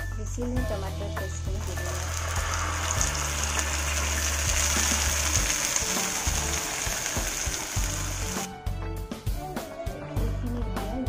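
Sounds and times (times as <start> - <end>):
background music: 0.0 - 11.0
puree sizzling in hot oil: 1.0 - 8.5.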